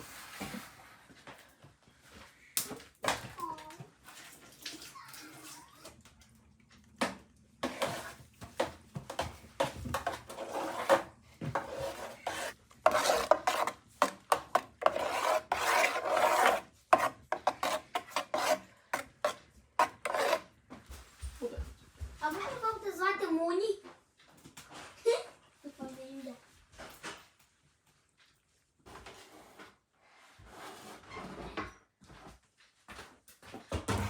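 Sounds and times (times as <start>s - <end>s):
rasping scrapes on hard surface: 7.6s - 20.5s, 30.3s - 31.5s.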